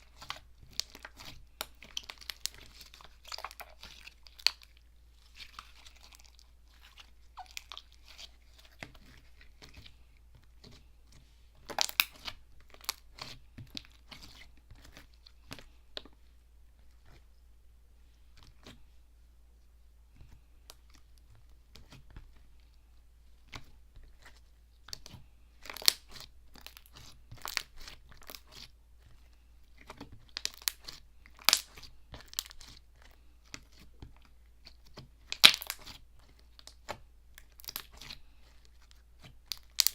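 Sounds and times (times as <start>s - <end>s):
slime clicking and crackling: 0.0s - 10.0s, 11.6s - 16.1s, 23.5s - 28.8s, 29.8s - 39.9s.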